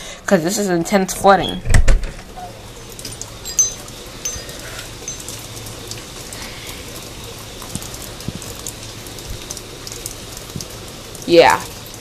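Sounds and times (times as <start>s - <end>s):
heavy rain hissing: 2.6s - 11.5s
raindrops ticking on deck: 2.8s - 12.0s.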